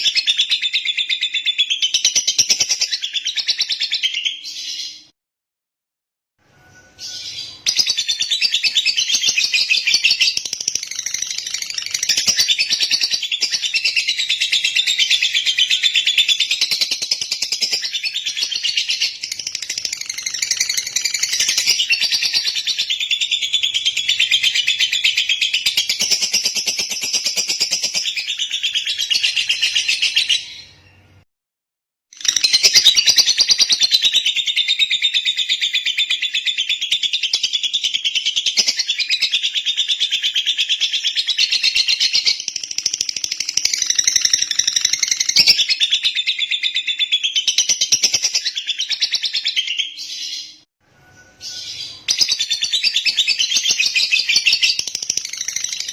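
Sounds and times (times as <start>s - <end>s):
lovebird chirping: 6.5s - 31.2s, 32.2s - 55.9s.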